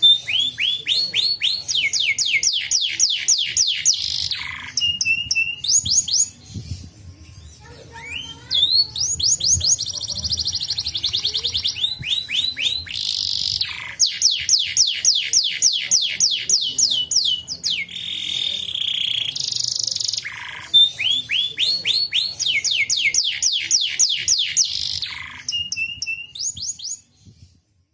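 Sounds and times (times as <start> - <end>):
canary singing: 0.0 - 27.1.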